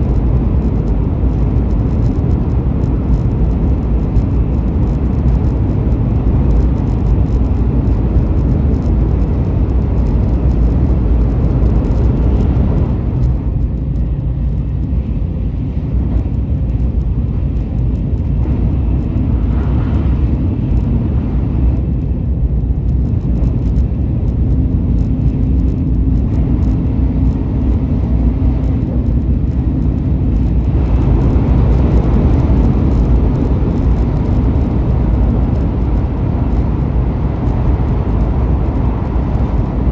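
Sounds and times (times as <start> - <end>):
train rumbling: 0.0 - 39.9.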